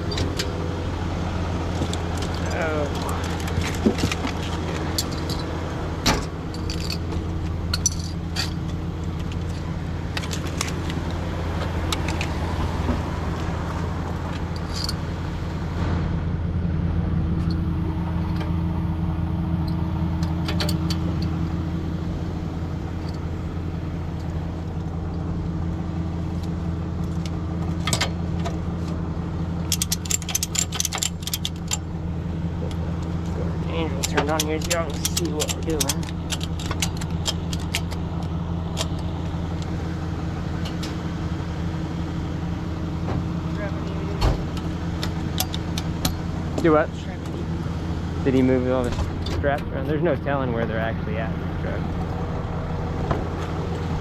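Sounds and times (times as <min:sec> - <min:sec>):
diesel engine running: 0:00.0 - 0:54.0
metallic clinks and rattles: 0:01.7 - 0:11.2, 0:14.3 - 0:15.2, 0:22.9 - 0:23.4, 0:29.6 - 0:39.7.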